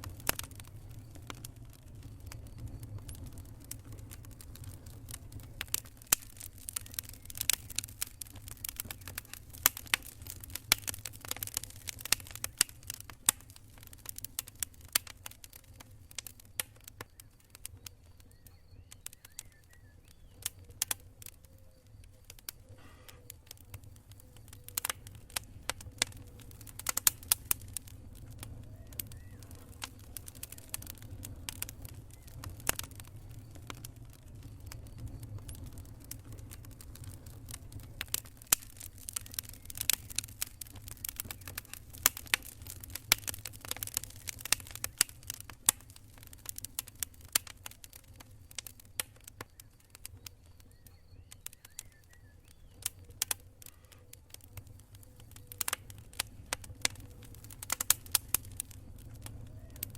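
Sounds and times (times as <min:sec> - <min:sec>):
campfire crackling: 0:00.0 - 0:59.9
steady low rumble: 0:23.7 - 0:38.5.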